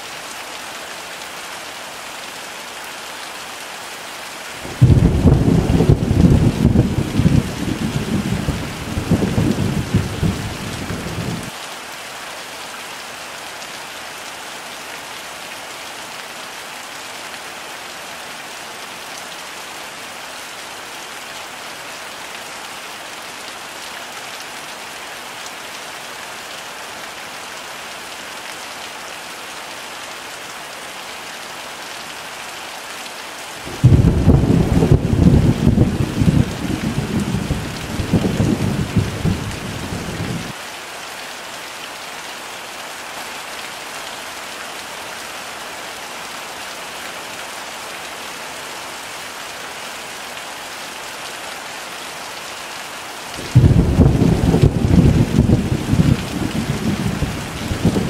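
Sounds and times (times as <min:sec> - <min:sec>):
heavy rain hissing: 0:03.2 - 0:12.4, 0:33.5 - 0:40.6, 0:51.5 - 0:58.0
low thunder rumble: 0:04.8 - 0:11.4, 0:33.8 - 0:40.5, 0:53.5 - 0:58.0.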